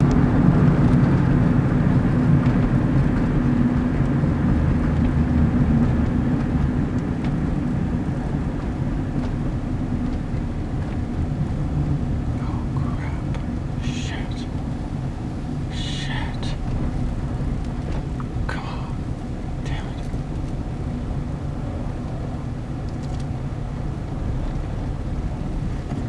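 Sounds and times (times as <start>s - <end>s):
vehicle rumble: 0.0s - 26.0s
faint steady hum: 10.8s - 22.5s.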